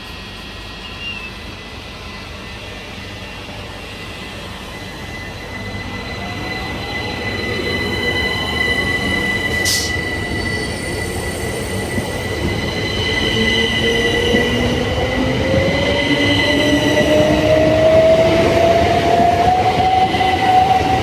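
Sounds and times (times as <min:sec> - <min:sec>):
brief hiss: 0:09.6 - 0:10.0.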